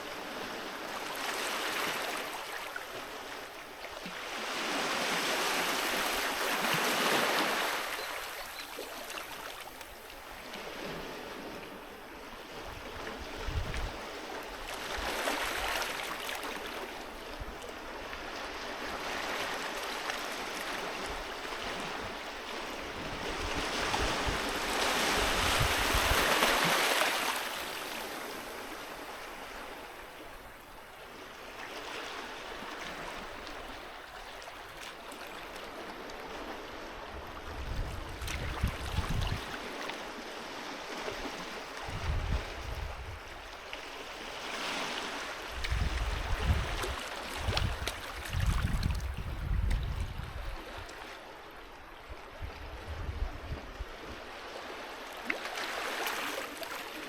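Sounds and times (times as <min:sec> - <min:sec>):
sea waves breaking: 0:04.2 - 0:11.9, 0:12.5 - 0:30.6, 0:37.6 - 0:52.6, 0:53.6 - 0:57.0.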